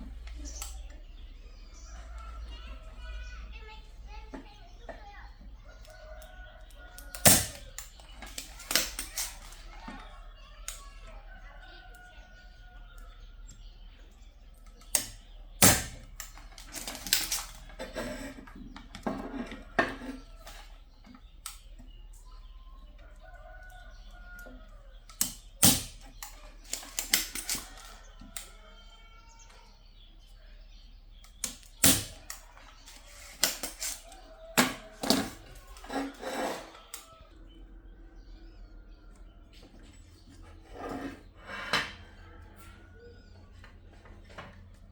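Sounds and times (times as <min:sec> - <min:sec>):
tools clattering on workbench: 0:14.9 - 0:21.6, 0:31.3 - 0:37.2.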